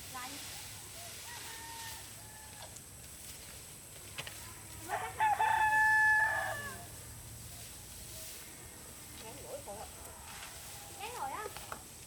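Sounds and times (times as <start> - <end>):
rooster crowing: 1.0 - 2.7, 4.9 - 6.9.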